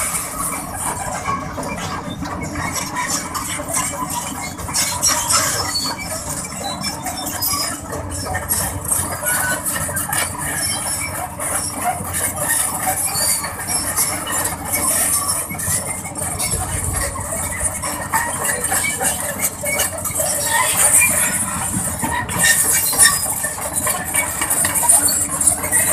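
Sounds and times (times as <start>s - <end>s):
crawler tracks squealing and clinking: 0.0s - 25.9s
low engine rumble: 0.0s - 25.9s.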